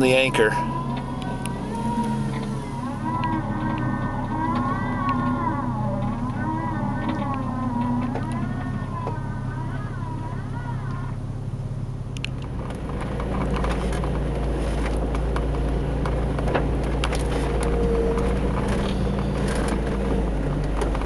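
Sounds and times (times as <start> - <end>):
engine running: 0.0 - 21.0
crackles and clicks: 0.7 - 9.2.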